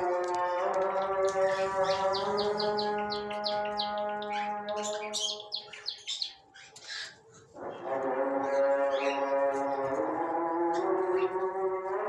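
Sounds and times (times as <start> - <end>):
background music with held notes: 0.0 - 6.3
birds chirping: 0.0 - 11.6.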